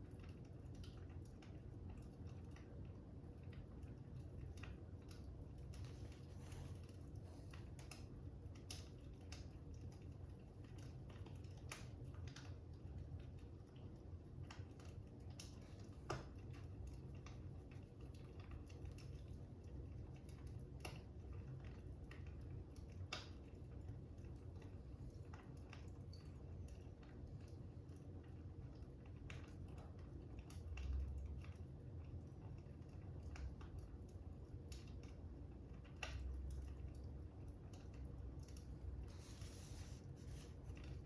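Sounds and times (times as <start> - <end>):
low fire rumble: 0.0 - 41.0.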